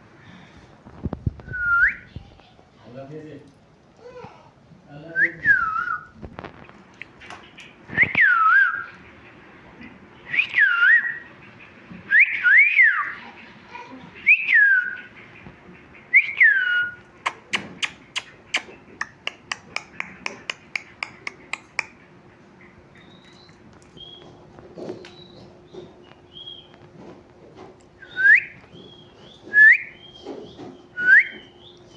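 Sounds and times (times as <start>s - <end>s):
parrot whistling: 10.3s - 11.2s, 16.1s - 17.0s, 28.0s - 28.7s, 29.5s - 30.2s, 31.0s - 31.7s.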